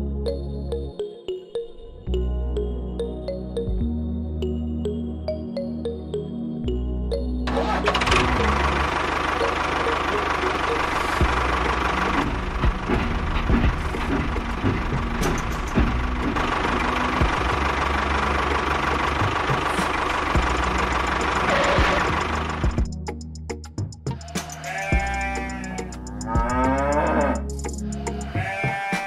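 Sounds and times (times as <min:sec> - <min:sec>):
tractor engine running: 0:07.4 - 0:28.4
knocks and clicks: 0:12.0 - 0:17.6.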